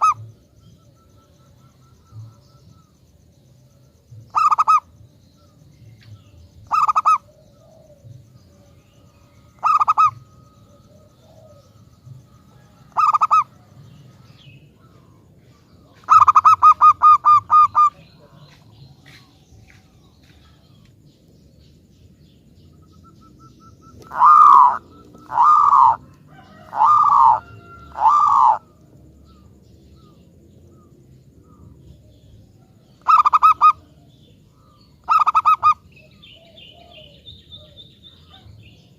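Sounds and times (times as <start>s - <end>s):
dove cooing: 0.0s - 0.4s, 4.3s - 4.9s, 6.6s - 18.5s, 22.8s - 38.9s.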